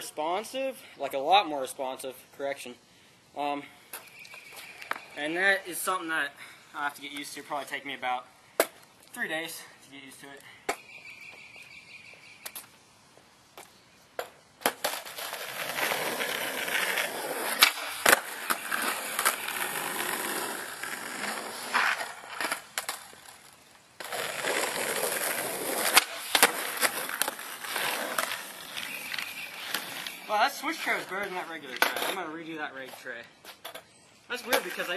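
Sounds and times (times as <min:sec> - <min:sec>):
skateboard wheels rolling on concrete: 0:00.0 - 0:34.9
skateboard tail popping and landing: 0:14.2 - 0:20.4, 0:24.0 - 0:30.2.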